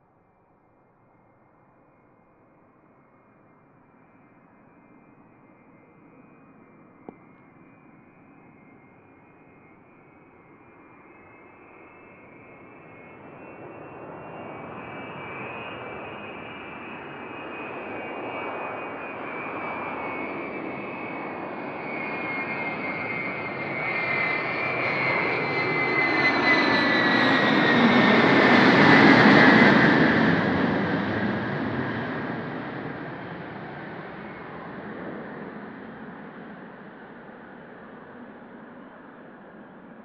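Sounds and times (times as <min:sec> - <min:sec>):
jet airliner engines passing: 0:05.0 - 0:40.0.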